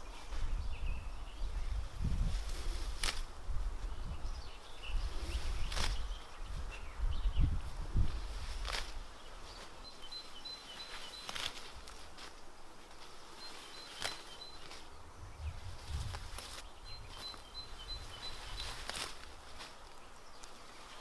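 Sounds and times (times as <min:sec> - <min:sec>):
outdoor ambience: 0:00.0 - 0:21.0
songbird singing: 0:00.0 - 0:21.0
brief rustles: 0:18.2 - 0:21.0.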